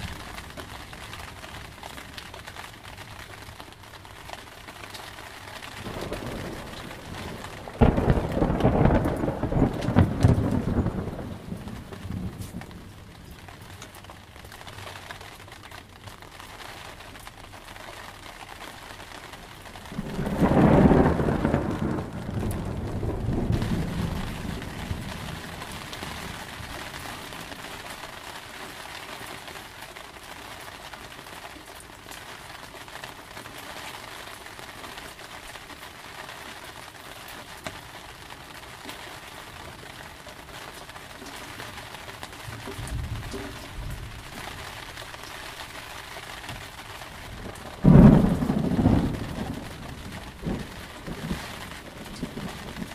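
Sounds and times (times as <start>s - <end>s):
steady rain: 0.0s - 52.9s
thunder rumbling: 5.6s - 13.8s, 19.6s - 27.6s, 42.5s - 52.9s.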